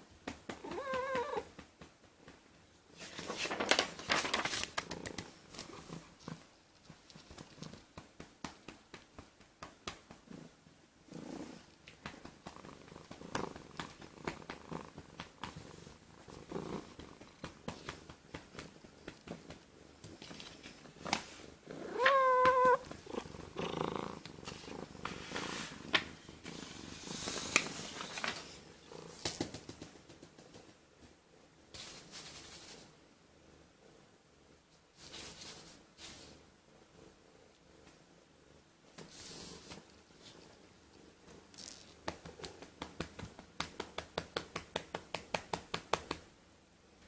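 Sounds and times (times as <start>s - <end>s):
cat meowing: 0.6s - 1.5s, 21.8s - 22.9s
cat purring: 4.7s - 7.9s, 10.2s - 30.6s.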